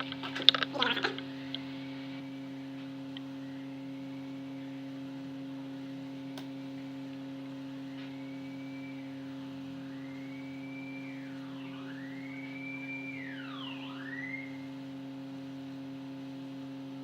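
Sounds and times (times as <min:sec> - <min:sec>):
electrical hum: 0:00.0 - 0:17.0
faint sliding whistling tones: 0:07.7 - 0:14.7.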